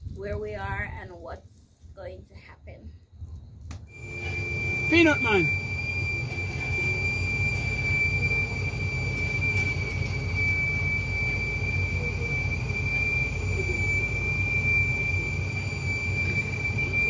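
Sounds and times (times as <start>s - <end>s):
high-pitched steam whistle: 3.9s - 17.0s.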